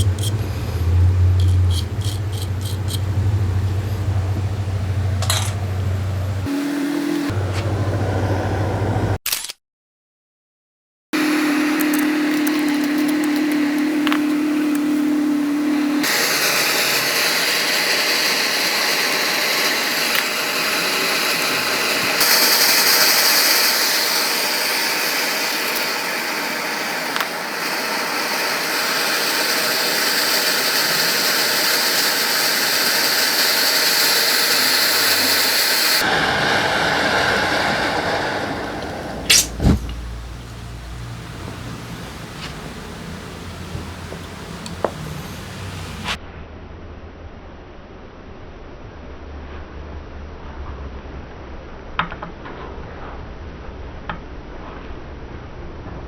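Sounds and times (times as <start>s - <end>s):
air jet hissing from nozzle: 0.0s - 7.4s, 11.2s - 46.2s
steady hum: 0.0s - 9.2s, 11.2s - 46.2s.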